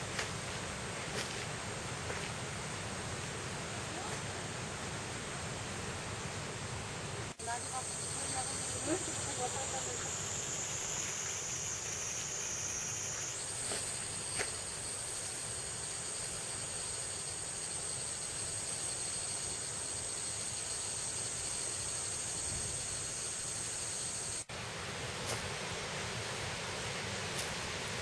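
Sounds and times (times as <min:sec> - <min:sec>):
background hiss: 0:00.0 - 0:28.0
insects trilling: 0:07.4 - 0:24.5.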